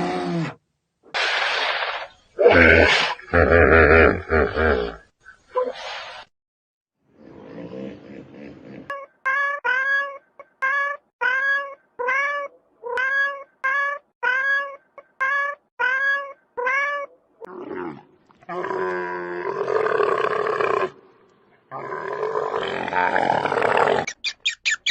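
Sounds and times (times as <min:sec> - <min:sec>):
animal calling high: 0:23.6 - 0:24.9.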